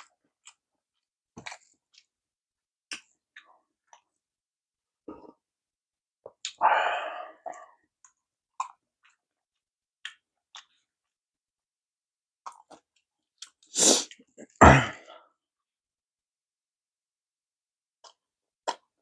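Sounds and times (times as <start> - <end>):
wet chewing clicks: 8.0 - 9.2, 10.0 - 10.9, 18.0 - 18.9.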